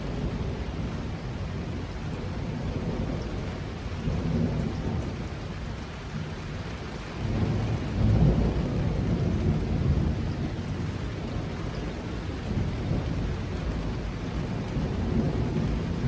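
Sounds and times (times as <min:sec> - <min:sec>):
heavy rain: 0:00.0 - 0:16.0
thunder rumbling: 0:07.2 - 0:16.0.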